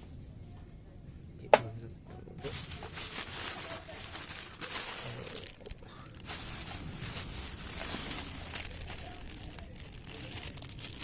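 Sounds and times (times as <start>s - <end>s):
twig fire hissing and crackling: 2.5s - 11.0s.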